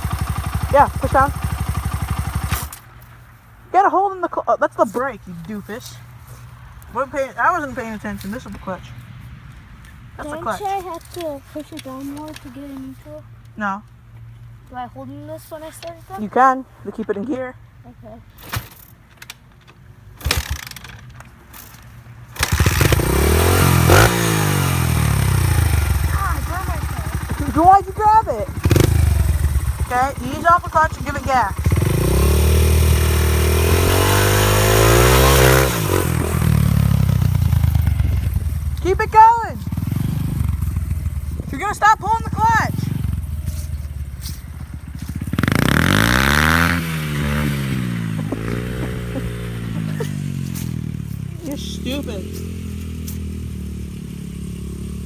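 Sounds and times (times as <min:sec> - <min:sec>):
dirt bike engine revving: 0:00.0 - 0:02.9, 0:20.2 - 0:20.9, 0:22.4 - 0:55.0.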